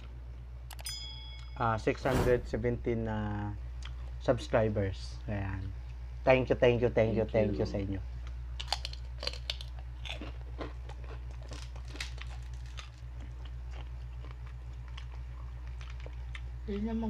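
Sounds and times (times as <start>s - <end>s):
steady low hum: 0.0s - 17.0s
crisp crunching of chewing: 8.2s - 16.8s.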